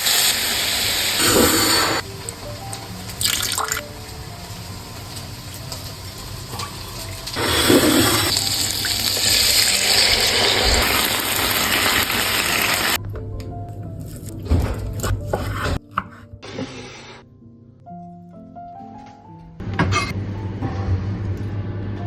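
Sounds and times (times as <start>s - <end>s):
water running from tap: 0.0s - 13.0s.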